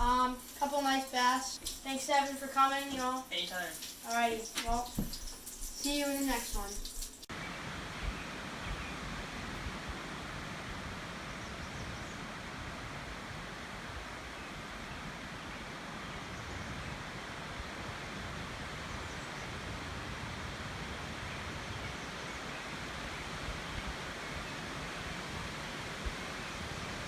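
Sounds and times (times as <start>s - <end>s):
wind rushing on microphone: 6.3s - 27.0s.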